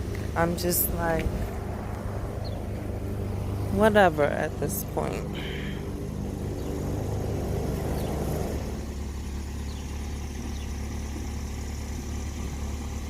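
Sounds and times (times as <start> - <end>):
car engine running at low speed: 0.0 - 13.0.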